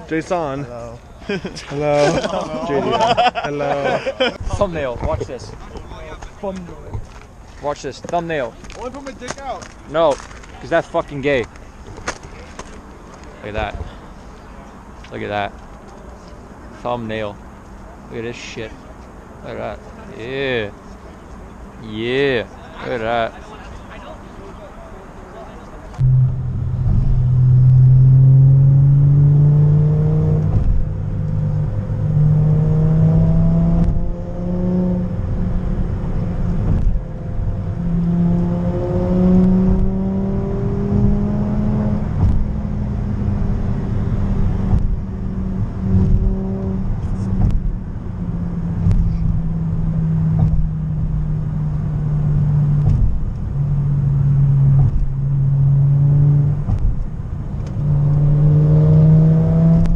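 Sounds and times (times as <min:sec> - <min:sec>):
car engine accelerating: 0:26.0 - 0:59.9.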